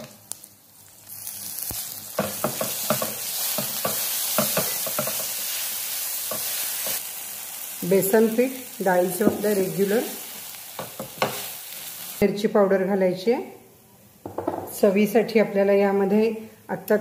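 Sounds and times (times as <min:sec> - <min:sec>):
paste sizzling in hot oil: 0:00.0 - 0:12.2
spoon stirring and scraping pan: 0:01.5 - 0:07.1, 0:10.7 - 0:11.6.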